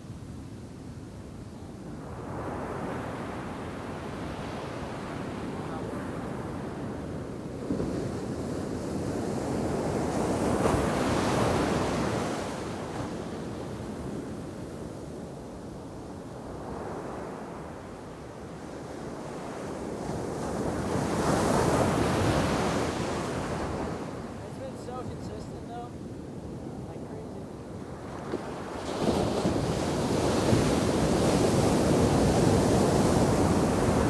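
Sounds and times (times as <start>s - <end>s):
wind buffeting microphone: 20.0s - 34.0s
ocean surf breaking: 20.4s - 34.0s.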